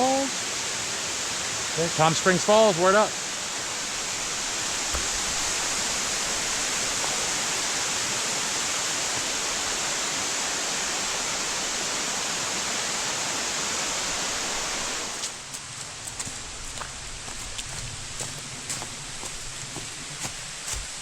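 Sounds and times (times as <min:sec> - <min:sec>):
waterfall rushing: 0:00.0 - 0:15.4.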